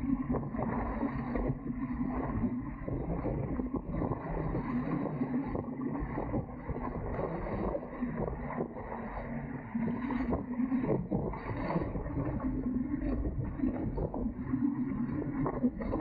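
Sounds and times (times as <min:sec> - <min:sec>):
water rushing along hulls: 0:00.0 - 0:16.0.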